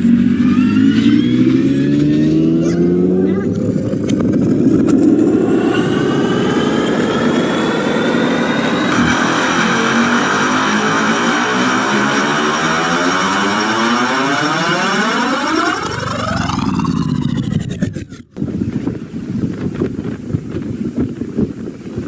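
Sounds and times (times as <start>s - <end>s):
higher rising tones: 0.0s - 18.4s
tones sliding upward in pitch: 0.1s - 4.0s, 5.0s - 18.2s.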